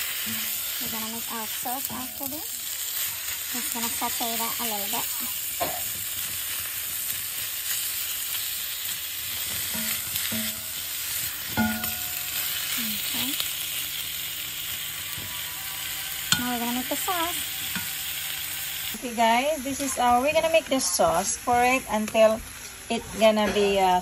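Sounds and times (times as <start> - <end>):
beef and onions sizzling in pan: 0.0 - 24.0
spatula clacking against pan: 9.5 - 10.8, 11.5 - 12.4.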